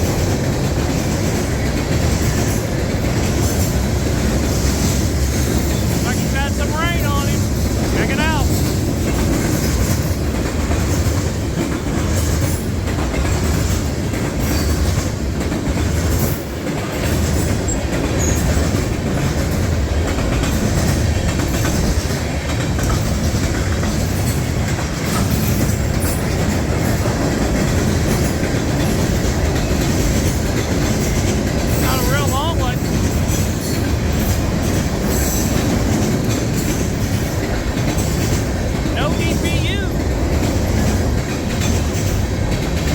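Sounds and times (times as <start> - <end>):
train wheels rumbling on rails: 0.0 - 42.9
wheels clicking over rail joints: 8.6 - 31.8.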